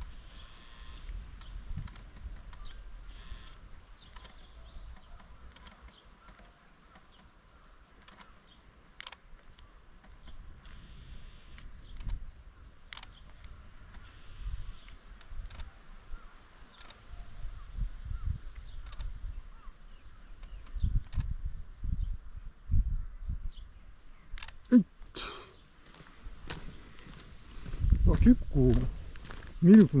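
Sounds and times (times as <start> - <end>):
small bird chirping: 0.0 - 22.2
camera handling noise: 0.7 - 7.4, 8.0 - 8.4, 9.0 - 12.2, 12.9 - 15.8, 16.6 - 17.0, 18.6 - 19.2, 20.4 - 21.3, 24.3 - 24.6
sharp clicks: 1.0 - 2.8, 3.5 - 7.4, 8.0 - 10.9, 11.5 - 15.7, 16.6 - 17.0, 18.6 - 19.2, 20.4 - 21.4, 24.3 - 24.8
footsteps: 25.8 - 30.0.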